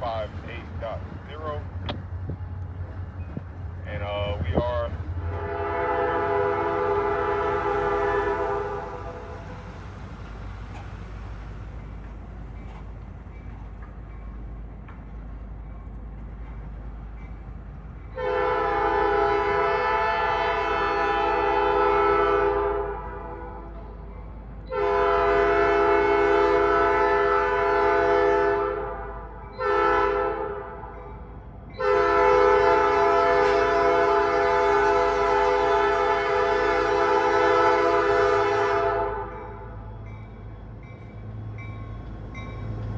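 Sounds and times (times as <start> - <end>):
low engine rumble: 0.0 - 26.2
locomotive air horn blasts: 5.2 - 9.6, 18.2 - 23.8, 24.6 - 30.9, 31.8 - 39.8.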